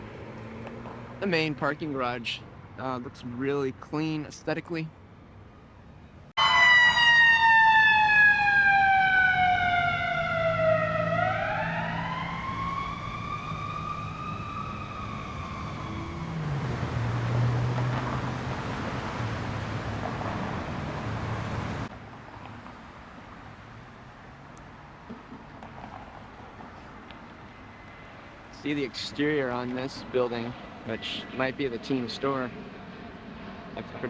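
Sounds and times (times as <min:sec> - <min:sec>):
vehicle engine hum: 0:00.0 - 0:02.8, 0:08.7 - 0:34.0
traffic noise: 0:00.0 - 0:34.0
emergency vehicle siren wailing: 0:06.4 - 0:21.9.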